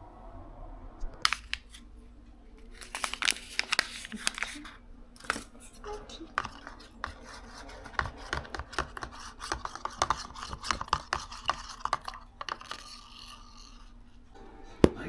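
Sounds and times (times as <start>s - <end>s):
rubbing and scraping: 6.3s - 14.3s.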